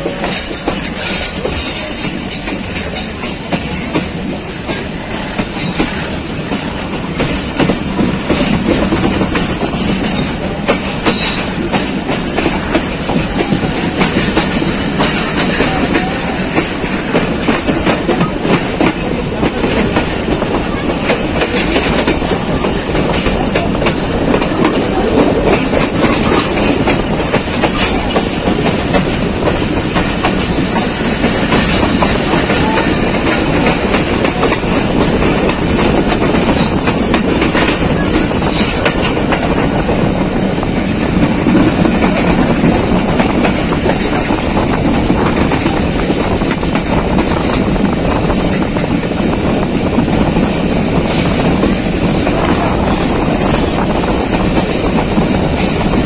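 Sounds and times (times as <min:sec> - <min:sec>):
wheels clicking over rail joints: 0:00.0 - 0:49.0
train rumble: 0:00.0 - 0:56.0.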